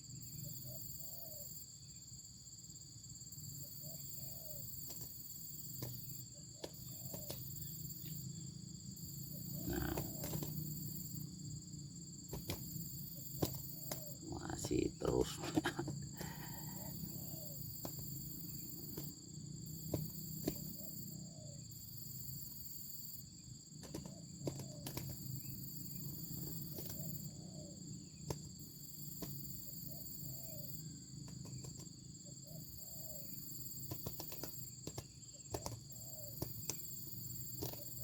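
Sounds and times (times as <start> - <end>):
insects droning: 0.0 - 38.0
short low bird calls: 9.3 - 10.6.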